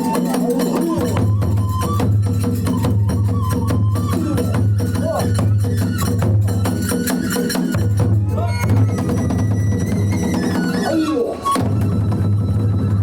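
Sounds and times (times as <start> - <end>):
high wind instrument melody: 0.0 - 13.0.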